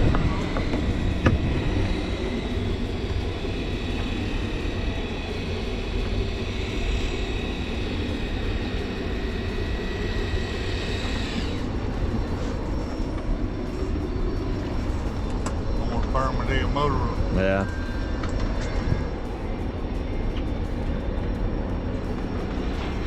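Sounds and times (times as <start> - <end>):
small motor whining: 0.0 - 15.8
boat engine: 0.0 - 23.0
wind rumble: 0.0 - 23.0.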